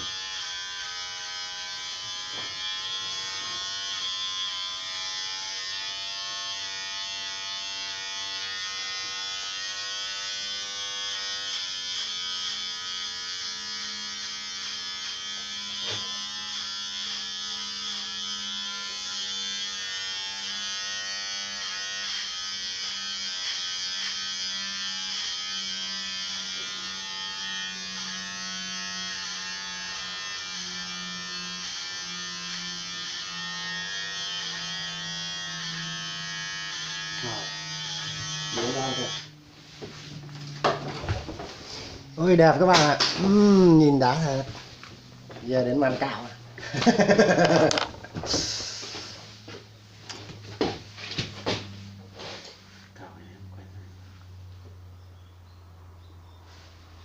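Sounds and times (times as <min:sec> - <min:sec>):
electric hair clippers buzzing: 0:00.0 - 0:54.9.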